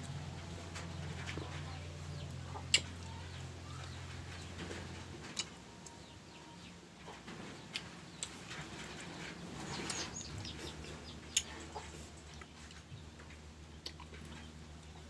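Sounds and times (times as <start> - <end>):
steady low hum: 0.0 - 15.0
chewing crisp mango crunches: 13.7 - 14.5.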